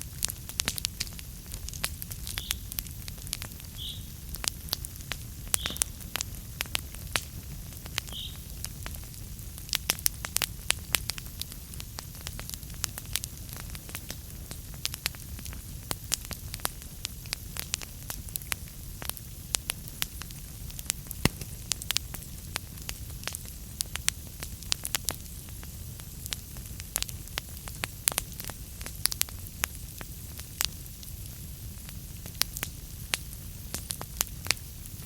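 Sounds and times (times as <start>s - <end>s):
logs crackling in fireplace: 0.0s - 35.0s.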